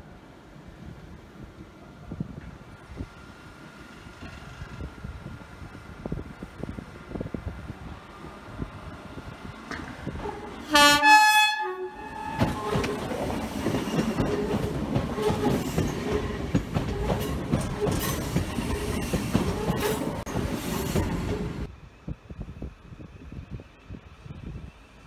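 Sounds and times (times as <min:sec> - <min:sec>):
train rumbling past: 0:00.0 - 0:25.0
two-tone train horn: 0:10.2 - 0:13.0
clattering train wheels: 0:12.2 - 0:21.7.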